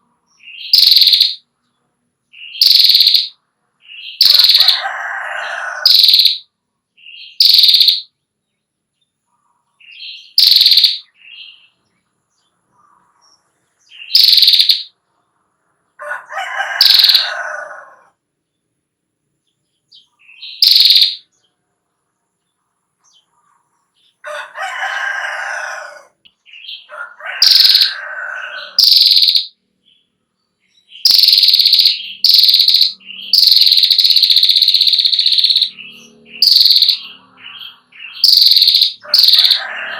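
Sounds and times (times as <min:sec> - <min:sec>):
bird chirping and trilling: 0:00.3 - 0:01.5, 0:02.3 - 0:08.2, 0:09.7 - 0:11.8, 0:12.7 - 0:15.0, 0:16.0 - 0:17.9, 0:19.9 - 0:21.5, 0:23.1 - 0:39.9.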